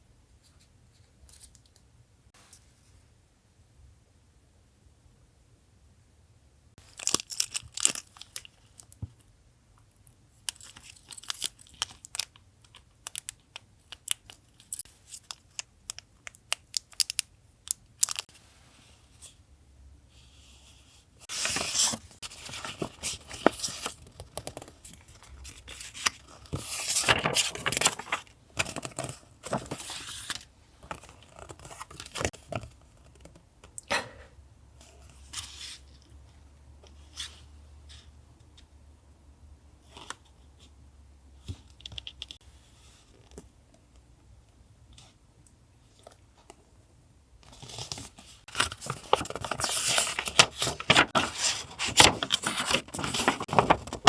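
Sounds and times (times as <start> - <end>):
paper rustling: 21.3 - 32.4, 47.5 - 54.0
paper tearing: 49.1 - 54.0.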